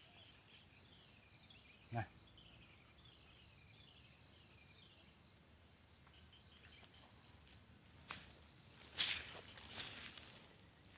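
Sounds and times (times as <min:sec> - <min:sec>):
insects trilling: 0:00.0 - 0:10.9.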